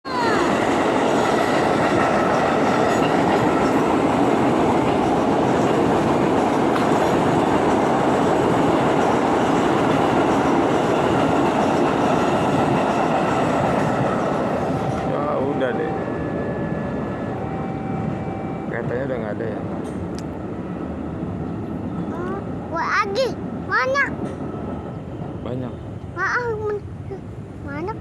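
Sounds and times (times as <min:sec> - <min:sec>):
train wheels on rails: 0:00.1 - 0:17.2, 0:21.8 - 0:25.6.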